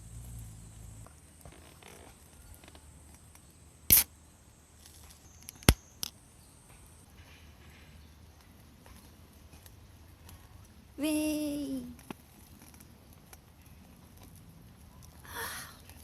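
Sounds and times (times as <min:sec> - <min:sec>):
sharp click: 0:03.9 - 0:04.1.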